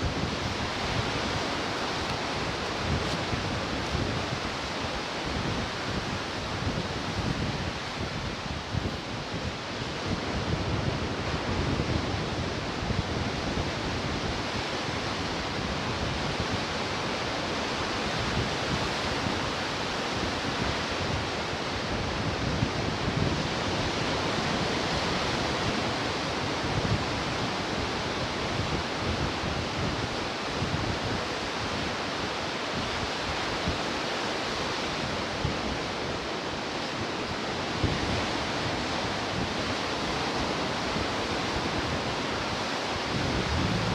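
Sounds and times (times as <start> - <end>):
ocean surf breaking on shore: 0.0 - 9.2, 30.1 - 43.9.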